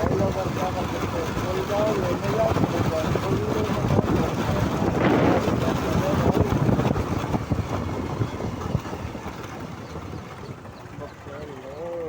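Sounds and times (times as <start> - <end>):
wind rushing over microphone: 0.0 - 11.2.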